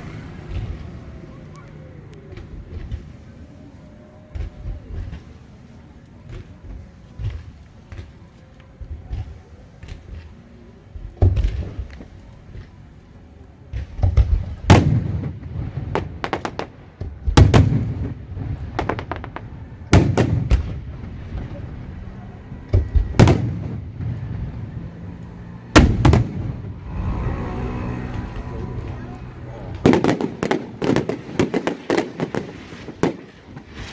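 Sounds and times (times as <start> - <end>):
fireworks booming: 0.0 - 1.6, 8.9 - 12.9, 13.7 - 33.9
small firework cracks: 11.1 - 26.8, 27.8 - 33.9.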